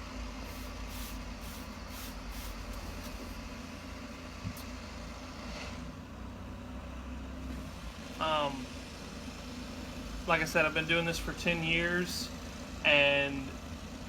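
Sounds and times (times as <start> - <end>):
low engine-like hum: 0.0 - 14.0
spray bottle hissing: 0.4 - 3.4.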